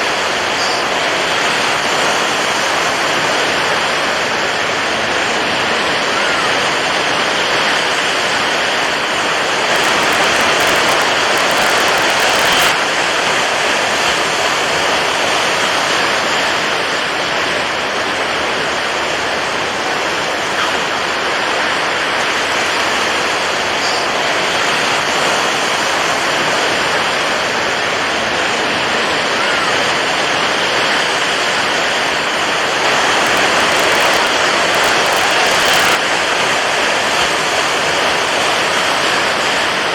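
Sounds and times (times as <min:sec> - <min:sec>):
water waves washing: 0:06.9 - 0:13.5, 0:14.6 - 0:39.9.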